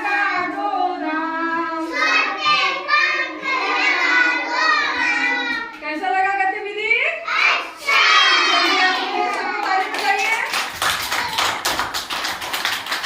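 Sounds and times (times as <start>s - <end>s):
children chanting: 0.0s - 5.7s, 7.3s - 10.0s
hand clapping: 9.3s - 13.0s.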